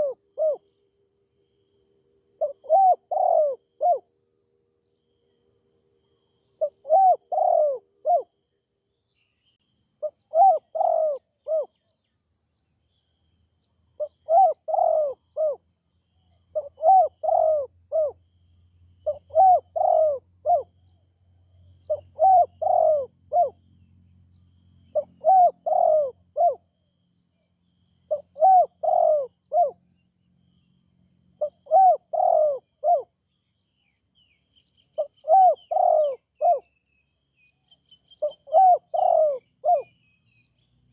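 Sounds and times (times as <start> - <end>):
dove cooing: 0.0 - 0.6, 2.4 - 4.1, 6.6 - 8.3, 10.0 - 11.8, 14.0 - 15.6, 16.5 - 18.2, 19.0 - 20.8, 21.9 - 23.6, 24.9 - 26.6, 28.1 - 29.8, 31.4 - 33.1, 35.0 - 36.7, 38.2 - 40.0.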